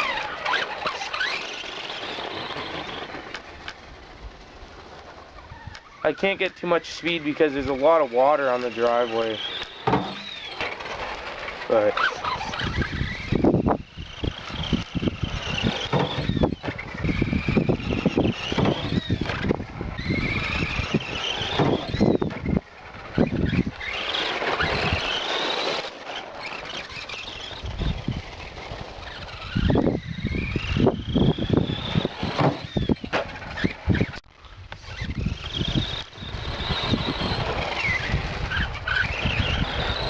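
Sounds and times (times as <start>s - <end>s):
electric motor whining: 0.0s - 40.0s
toy truck knocking and rattling: 8.5s - 34.2s.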